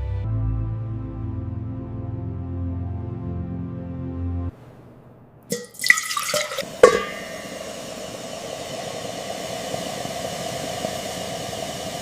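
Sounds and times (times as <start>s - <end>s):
metallic clanks ringing: 6.8s - 7.5s.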